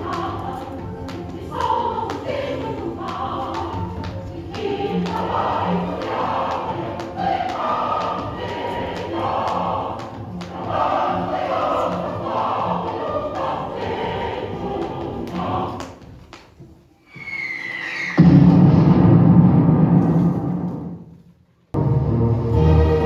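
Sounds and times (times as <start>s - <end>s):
choir singing: 0.0s - 16.1s, 21.8s - 23.0s.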